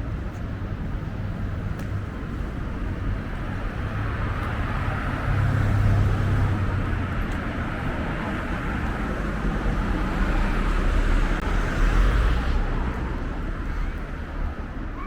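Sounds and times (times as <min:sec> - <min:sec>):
vehicle passing: 0:02.7 - 0:13.0.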